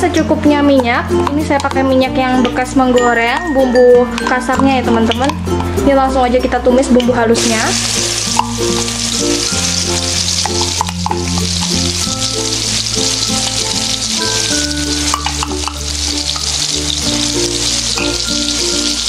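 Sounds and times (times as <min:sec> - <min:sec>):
soft background music: 0:00.0 - 0:19.0
spice paste sizzling in oil: 0:07.4 - 0:19.0.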